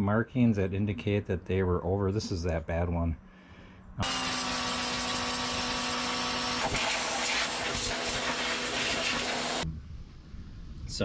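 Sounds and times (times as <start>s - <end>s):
machine motor humming and hissing: 4.0s - 9.6s.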